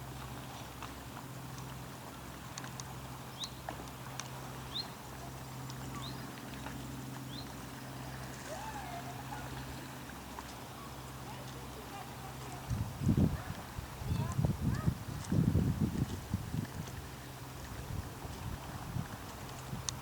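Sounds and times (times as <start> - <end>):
boat engine idling: 0.0 - 15.0
wavering call: 8.4 - 9.9.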